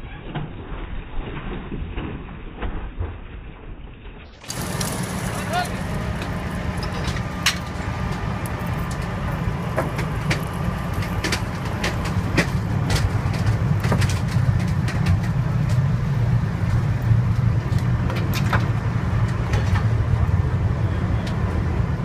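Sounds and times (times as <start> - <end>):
heavy truck engine running: 4.4 - 22.0
sharp metallic clicks and knocks: 6.2 - 15.9.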